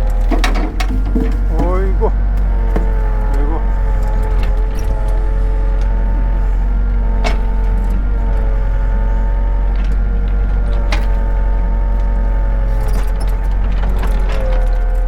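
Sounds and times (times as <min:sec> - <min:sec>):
excavator engine and hydraulics: 0:00.0 - 0:15.0
grapple knocks and clunks: 0:00.2 - 0:03.4.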